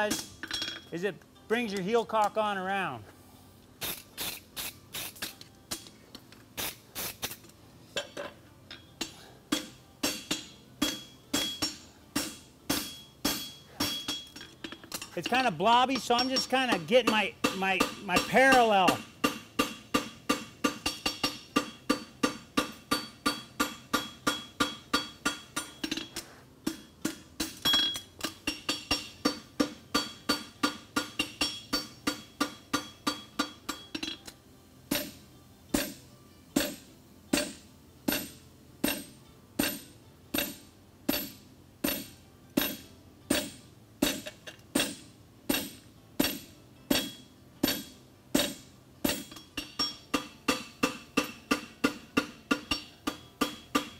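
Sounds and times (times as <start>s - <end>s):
hammer striking horseshoe on anvil: 0.0s - 0.9s, 8.0s - 36.0s, 36.6s - 53.9s
anvil ringing: 8.7s - 26.1s, 44.8s - 53.9s.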